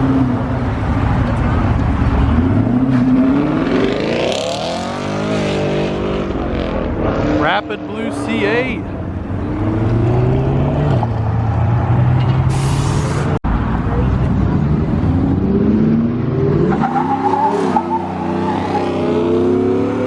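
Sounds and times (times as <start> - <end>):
crowd voices: 7.4 - 9.1.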